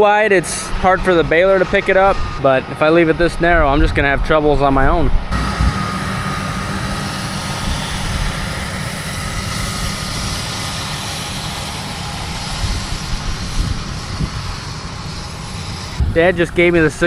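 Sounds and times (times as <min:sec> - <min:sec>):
machinery hiss: 0:05.3 - 0:17.0
tractor engine running: 0:05.3 - 0:17.0.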